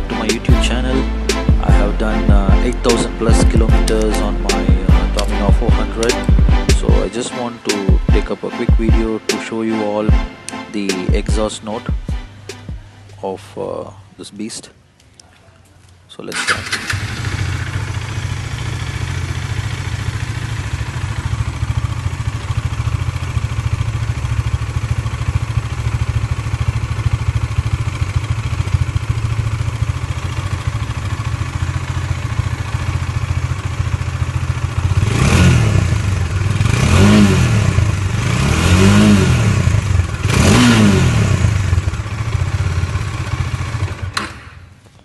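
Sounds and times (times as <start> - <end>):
motorcycle engine idling and revving: 0.0 - 4.1, 4.8 - 7.0, 16.4 - 44.9.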